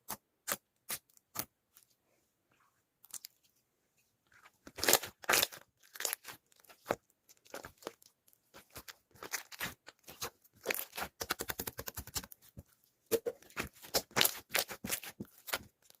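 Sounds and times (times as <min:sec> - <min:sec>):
crunching and crinkling: 0:04.4 - 0:11.3.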